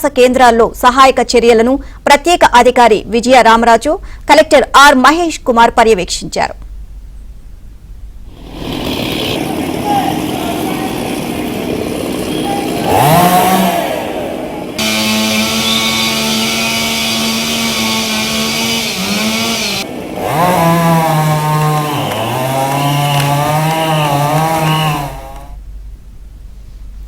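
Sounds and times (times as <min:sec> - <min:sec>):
small engine revving: 0:08.3 - 0:25.6.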